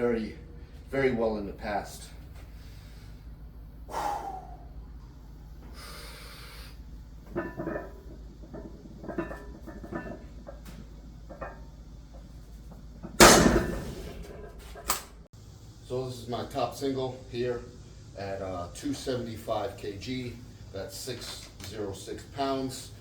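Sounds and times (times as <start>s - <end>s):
person breathing hard: 3.9s - 4.8s, 5.6s - 6.8s
barbell banging onto rack: 13.0s - 15.0s.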